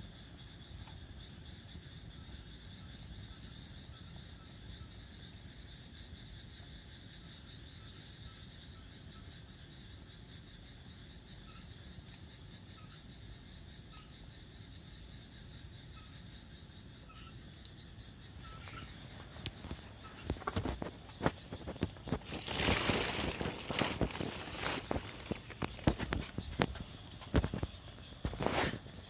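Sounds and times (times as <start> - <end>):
small chirps: 7.5 - 29.0
wood fire crackling: 9.8 - 29.0.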